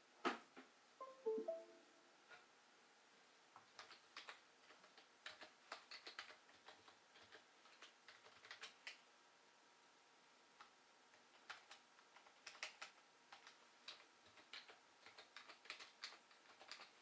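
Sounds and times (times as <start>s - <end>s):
keyboard typing clicks: 1.0s - 1.8s.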